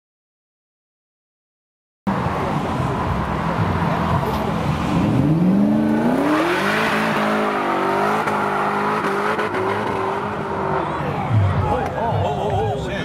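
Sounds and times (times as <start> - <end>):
car engine speeding up: 2.1 - 11.5.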